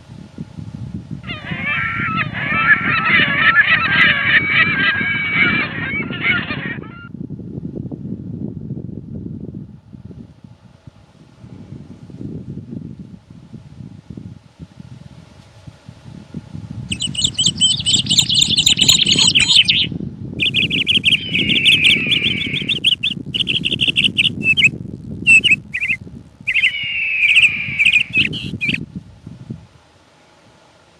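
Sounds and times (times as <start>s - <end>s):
low rumble of wind: 0.0s - 30.9s
songbird warbling: 1.3s - 7.1s, 16.9s - 28.8s.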